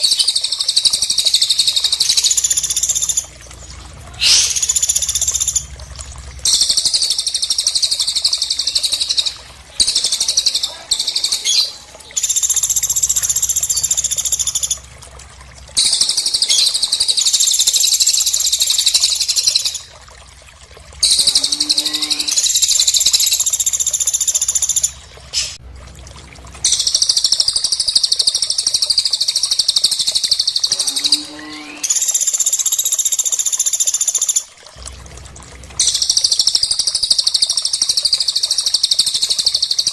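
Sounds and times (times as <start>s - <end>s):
high-pitched bird trills: 4.2s - 5.7s, 21.0s - 23.4s, 30.2s - 32.2s.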